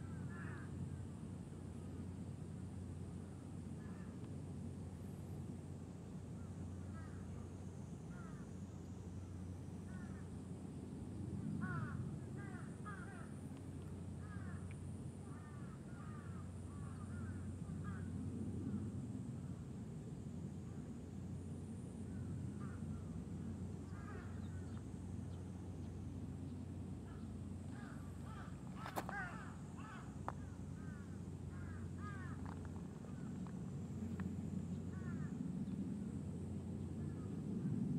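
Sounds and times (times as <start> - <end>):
low background rumble: 0.0 - 37.9
bird calling: 27.0 - 33.4.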